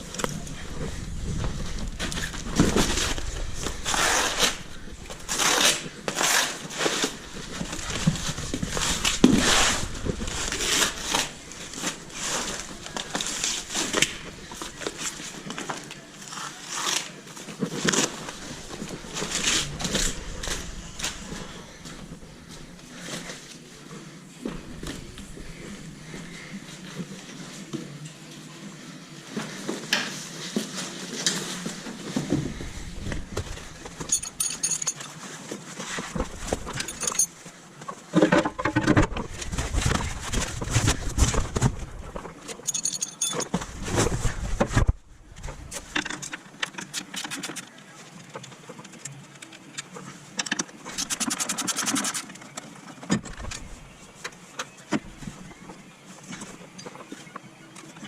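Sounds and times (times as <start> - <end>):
metal tools clinking and clanking: 34.0 - 35.3, 36.6 - 37.4, 42.5 - 43.6.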